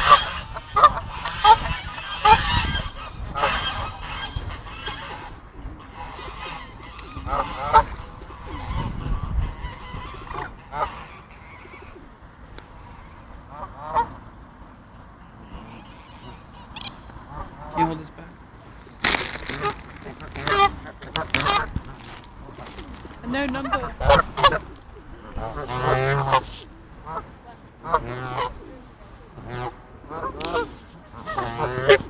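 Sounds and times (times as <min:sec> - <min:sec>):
geese honking: 0:00.0 - 0:08.8, 0:09.5 - 0:12.0, 0:18.8 - 0:28.7, 0:29.3 - 0:32.0.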